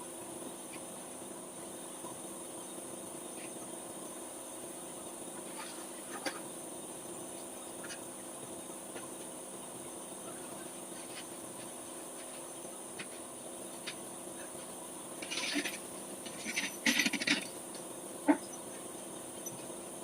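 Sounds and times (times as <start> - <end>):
metal scrape: 15.2 - 17.5.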